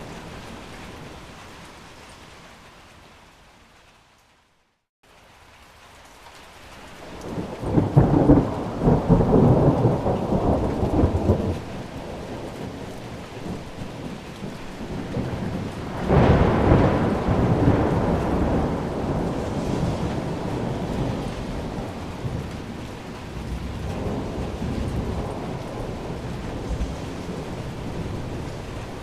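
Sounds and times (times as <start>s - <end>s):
steady rain: 0.0s - 29.0s
thunder rumbling: 7.2s - 29.0s.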